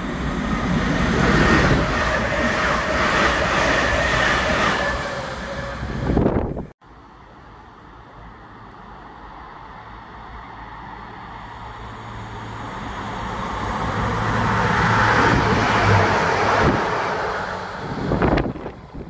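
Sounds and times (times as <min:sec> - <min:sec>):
wind gust on microphone: 0:00.0 - 0:06.8, 0:13.3 - 0:19.0
diesel train engine hum: 0:00.0 - 0:19.0.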